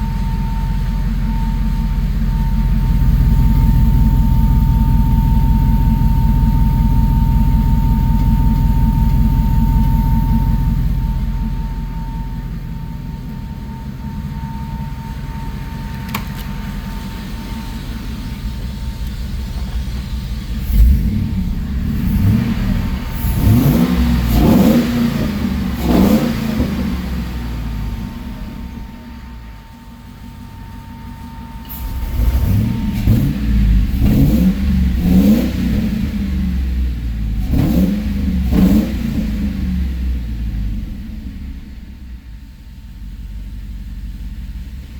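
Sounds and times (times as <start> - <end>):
thin steady whine: 0.0 - 23.8, 26.8 - 33.9
car engine idling: 0.0 - 44.9.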